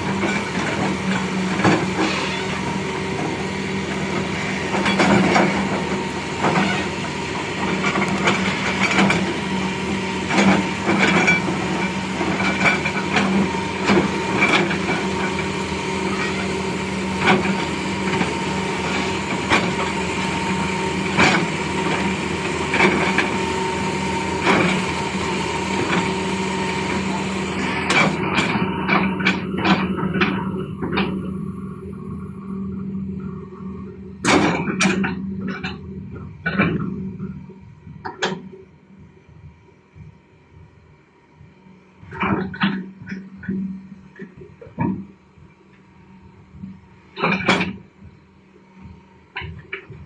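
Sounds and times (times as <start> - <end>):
excavator engine running: 0.0 - 50.0.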